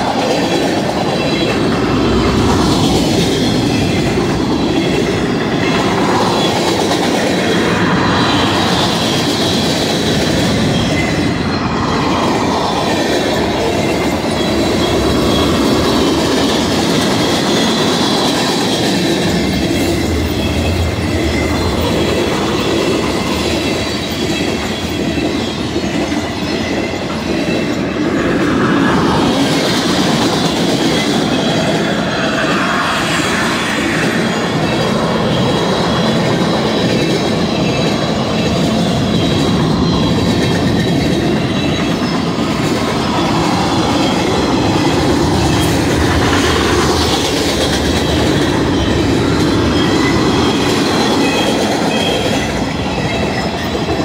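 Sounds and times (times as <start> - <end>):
steel wheels clattering on rails: 0.0 - 54.0.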